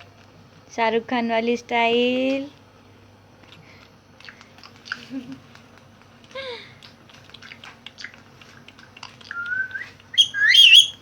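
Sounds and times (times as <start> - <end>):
parrot clicks and chirps: 9.3 - 11.0
parrot whistling: 9.3 - 11.0
parrot squawking: 10.2 - 11.0.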